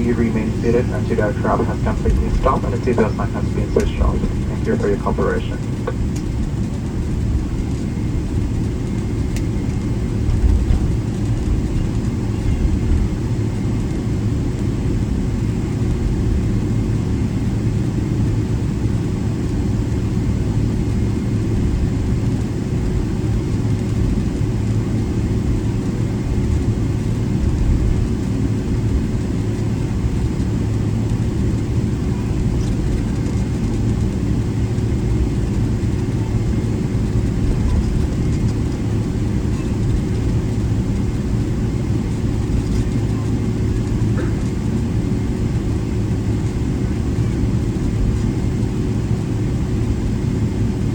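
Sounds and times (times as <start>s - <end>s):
steady hum tone: 0.0s - 13.6s
jet engines low rumble: 0.0s - 50.9s.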